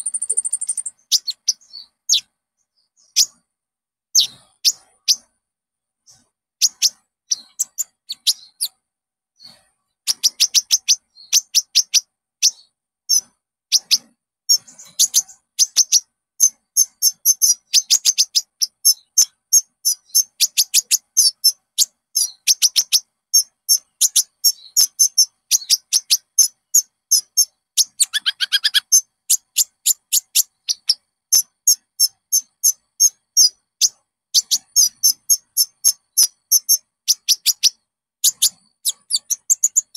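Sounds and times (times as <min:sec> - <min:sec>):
sunbird singing: 0:00.0 - 0:03.5, 0:04.1 - 0:05.3, 0:06.0 - 0:08.8, 0:09.4 - 0:39.9.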